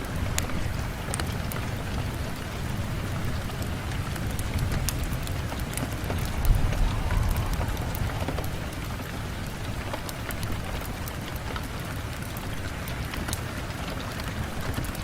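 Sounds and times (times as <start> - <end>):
rain on a window: 0.0 - 15.0
low rumble: 5.1 - 10.7.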